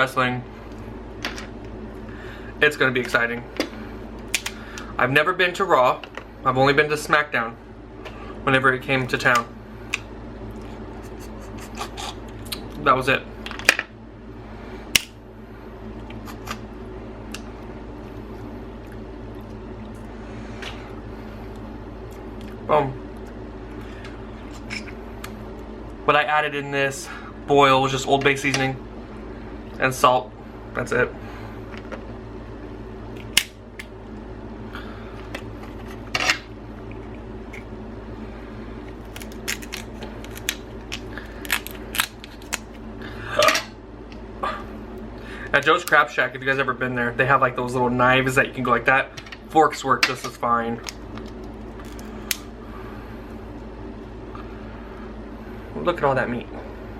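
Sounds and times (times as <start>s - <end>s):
steady low hum: 0.0s - 56.9s
crab shells cracking: 39.0s - 42.8s.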